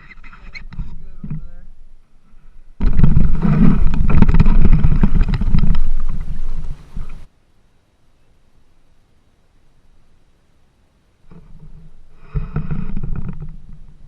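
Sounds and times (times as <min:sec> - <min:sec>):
knocking and scraping on kayak hull: 0:02.8 - 0:07.3, 0:11.3 - 0:14.0.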